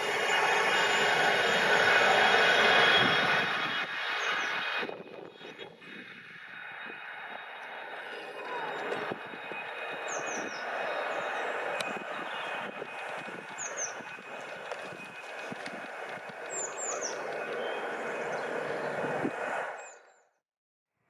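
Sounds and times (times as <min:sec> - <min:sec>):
train passing on rails: 0:00.0 - 0:20.0
bird chirping: 0:09.5 - 0:15.5, 0:16.2 - 0:19.1.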